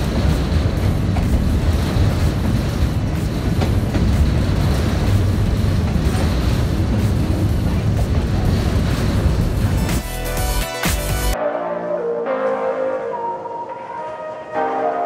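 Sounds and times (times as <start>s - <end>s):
train rumbling along track: 0.0s - 11.2s.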